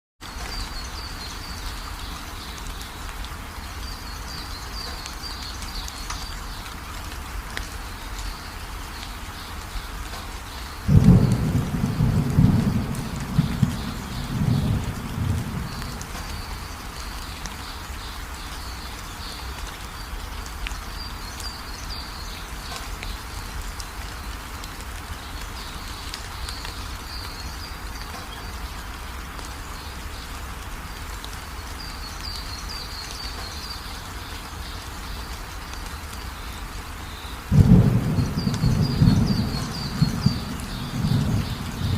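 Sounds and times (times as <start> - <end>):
steady rain falling: 0.2 - 41.9
thunder rumbling: 10.9 - 16.7, 37.5 - 41.9.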